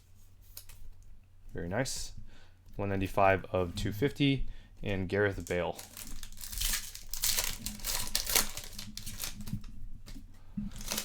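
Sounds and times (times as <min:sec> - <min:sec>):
foil wrapper crinkling and tearing: 0:05.4 - 0:09.7, 0:10.7 - 0:11.0.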